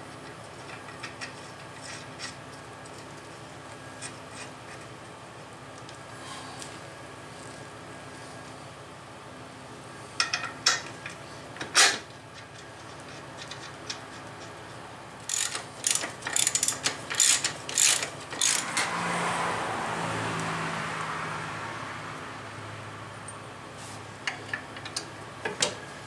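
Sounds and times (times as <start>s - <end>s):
socket ratchet clicking: 15.3s - 18.8s.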